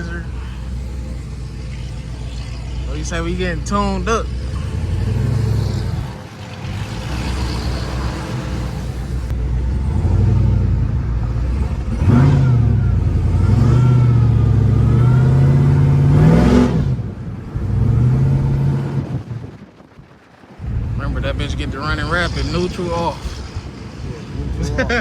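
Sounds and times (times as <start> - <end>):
car engine revving: 0.0 - 19.3
faint engine whine: 0.0 - 25.0.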